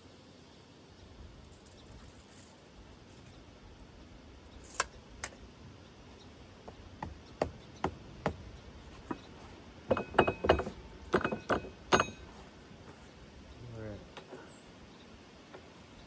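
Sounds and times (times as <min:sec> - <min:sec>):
metal tools clinking: 0:07.0 - 0:13.1.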